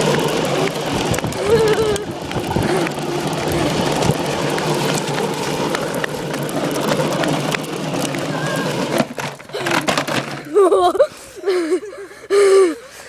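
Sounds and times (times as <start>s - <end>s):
steady rushing noise: 0.0s - 9.4s
clicks and rattles: 0.0s - 10.7s
small motorbike engine running: 0.0s - 10.7s.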